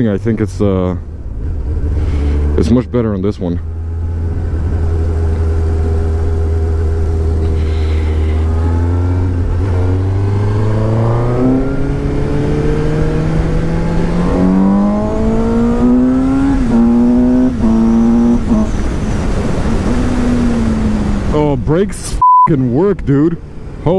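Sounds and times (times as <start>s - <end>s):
motorcycle engine revving: 1.3s - 21.4s
riding wind rushing: 6.8s - 22.2s.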